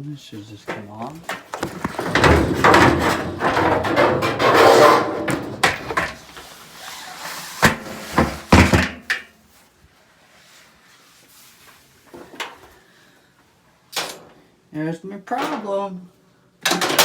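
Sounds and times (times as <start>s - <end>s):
dryer parts scraping and rattling: 0.0s - 9.7s, 15.3s - 15.9s, 16.6s - 17.0s
sharp knocks: 1.4s - 6.2s.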